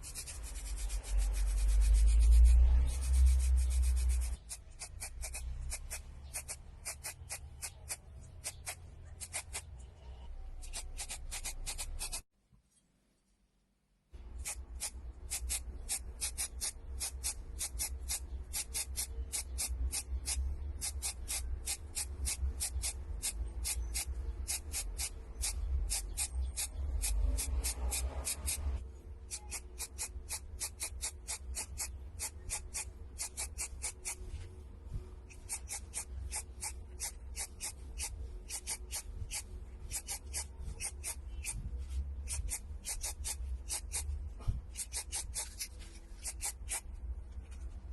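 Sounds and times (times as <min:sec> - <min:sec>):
tool scraping on wood: 0:00.0 - 0:09.7, 0:35.3 - 0:46.9.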